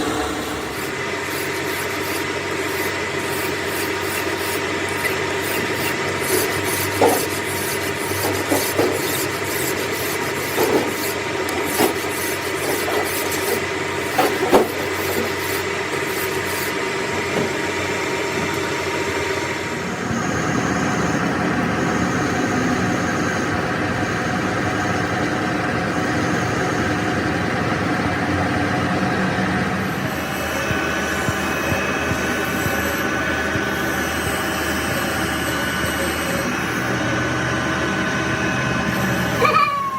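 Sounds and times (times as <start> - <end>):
scraping and knocks from lathe work: 0.0 - 18.6
metal lathe running: 0.0 - 39.9.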